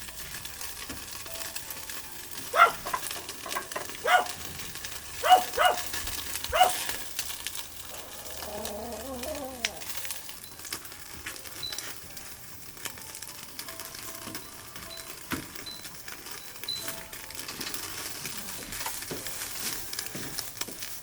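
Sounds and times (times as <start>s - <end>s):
fire pops and snaps: 0.0s - 21.0s
wood fire crackling: 0.0s - 21.0s.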